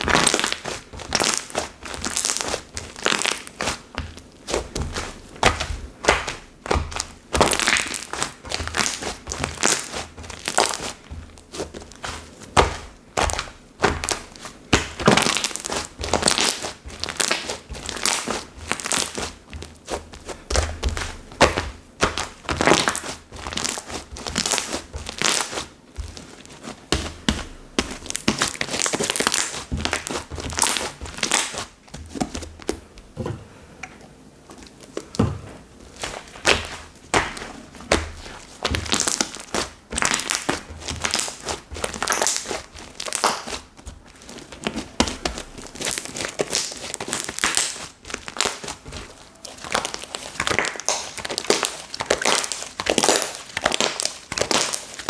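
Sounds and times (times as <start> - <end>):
hands kneading crackling slime: 0.0 - 33.2, 34.4 - 55.0.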